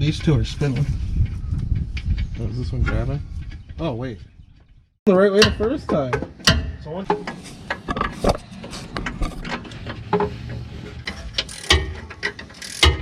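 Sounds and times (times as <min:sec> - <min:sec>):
hand ratchet clicking: 0:11.1 - 0:13.0.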